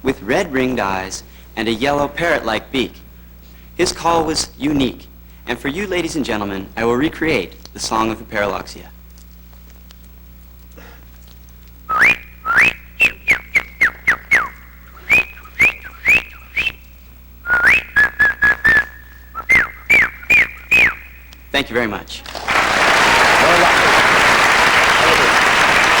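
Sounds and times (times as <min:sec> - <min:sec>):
person whistling birdsong: 0:11.9 - 0:21.4.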